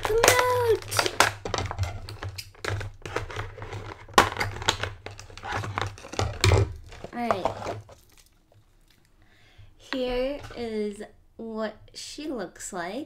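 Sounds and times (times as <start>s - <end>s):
toy packaging crinkling: 0.0s - 8.4s.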